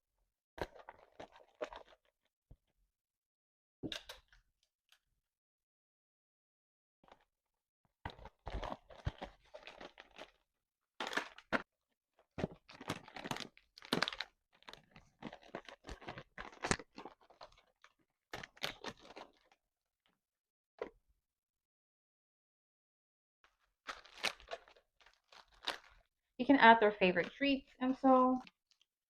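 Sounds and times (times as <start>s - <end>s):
plastic candy wrappers crinkling: 0.6s - 2.1s, 8.1s - 10.4s, 11.0s - 11.6s, 12.2s - 19.6s, 23.6s - 26.1s.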